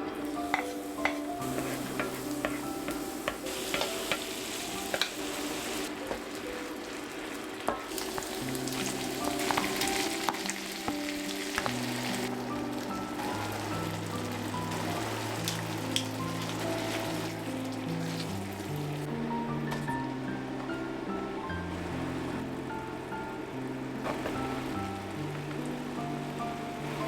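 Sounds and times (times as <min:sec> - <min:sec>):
food sizzling in a pan: 0:00.0 - 0:19.1, 0:24.0 - 0:27.0
soft background music: 0:00.0 - 0:27.0
utensil clicking against pan: 0:02.0 - 0:04.3.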